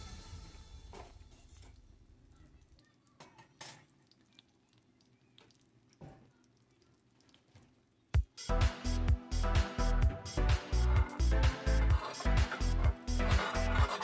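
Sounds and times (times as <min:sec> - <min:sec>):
egg frying in a skillet: 0:00.3 - 0:08.5
soft crackles: 0:01.1 - 0:08.2
music with a beat: 0:08.2 - 0:14.0.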